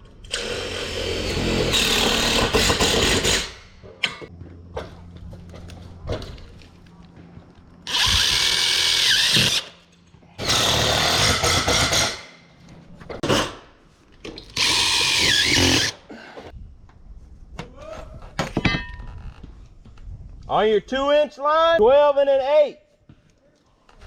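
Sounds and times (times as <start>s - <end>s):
power drill driving screws: 0.2s - 3.6s, 7.9s - 9.8s, 10.4s - 12.3s, 14.4s - 16.0s.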